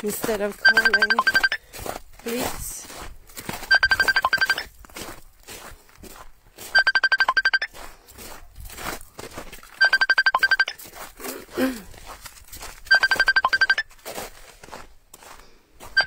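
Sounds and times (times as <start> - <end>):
footsteps on the ground: 0.0 - 3.7, 4.6 - 6.8, 7.7 - 9.8, 10.8 - 12.9, 13.8 - 16.0
smartphone trilling beeps: 0.6 - 1.6, 3.7 - 4.7, 6.7 - 7.8, 9.8 - 10.8, 12.9 - 13.9.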